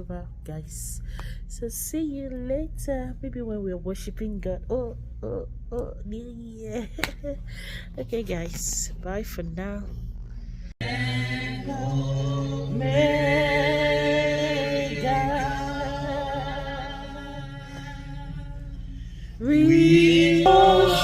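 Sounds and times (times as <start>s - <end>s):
voices singing slow praise song: 10.8s - 21.0s.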